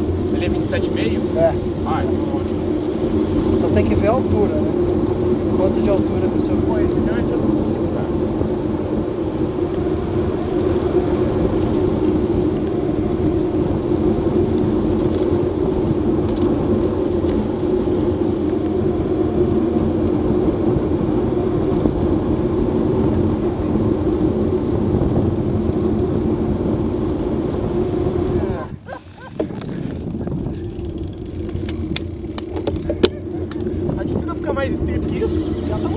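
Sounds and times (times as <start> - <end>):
bicycle tyre noise on road: 0.0 - 35.9
constant low hum: 0.0 - 35.9
wind on microphone: 0.0 - 35.9.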